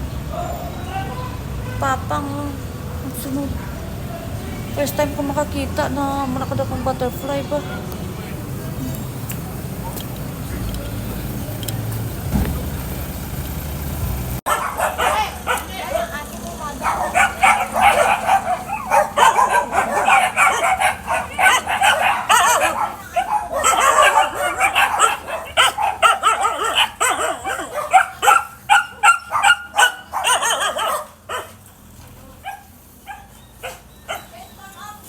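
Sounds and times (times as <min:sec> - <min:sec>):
dogs barking and yipping: 0:00.1 - 0:01.6, 0:03.4 - 0:07.4, 0:14.4 - 0:35.0.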